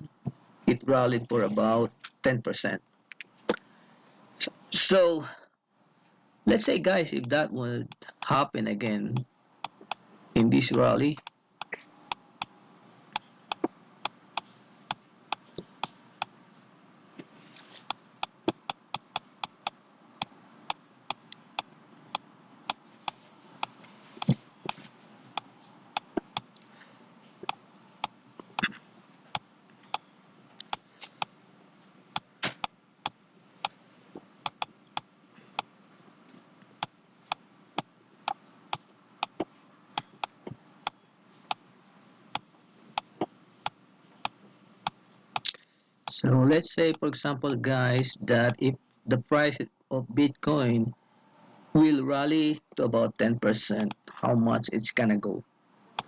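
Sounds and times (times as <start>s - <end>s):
computer mouse clicks: 13.2s - 13.7s, 17.8s - 19.8s, 29.8s - 31.3s, 34.5s - 35.7s.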